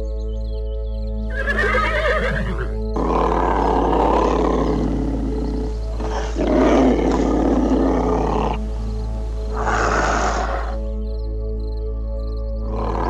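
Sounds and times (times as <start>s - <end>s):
background music sustained notes: 0.0s - 13.0s
large animal calling: 1.3s - 10.8s, 12.7s - 13.0s.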